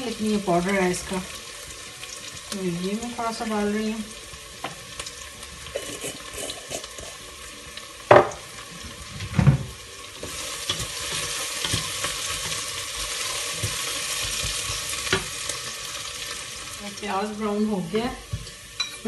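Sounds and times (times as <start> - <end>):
onions sizzling in oil: 0.0 - 19.0
wooden spoon stirring onions: 10.2 - 16.7.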